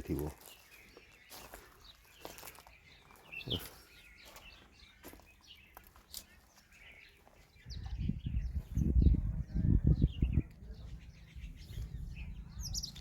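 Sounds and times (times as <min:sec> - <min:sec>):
bird chirps and calls: 0:00.0 - 0:13.0
low rumbling noise: 0:08.2 - 0:13.0.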